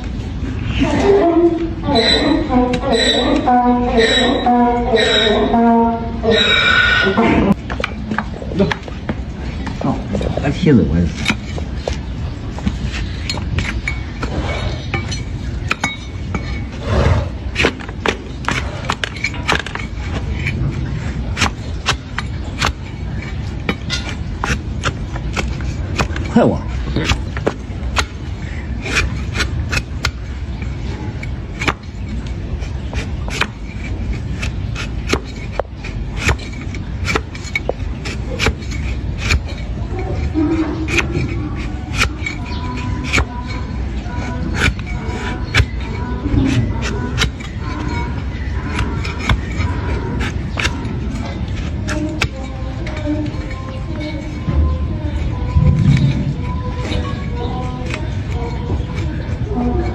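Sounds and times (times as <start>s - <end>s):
hoof-trimming tools clicking: 7.6s - 9.8s, 11.1s - 16.8s, 17.5s - 55.6s, 56.4s - 59.9s
low rumble: 54.5s - 56.9s.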